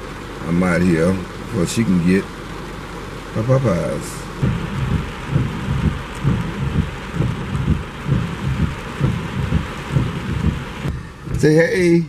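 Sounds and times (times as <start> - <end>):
rain falling on a car: 0.0 - 12.0
low thumps: 4.4 - 11.7.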